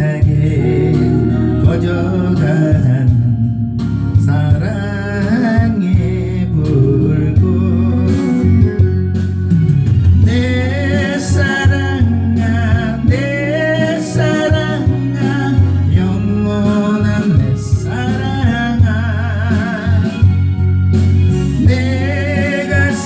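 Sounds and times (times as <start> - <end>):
person singing with vibrato: 0.0 - 9.2, 10.2 - 23.0
instrumental accompaniment: 0.0 - 23.0.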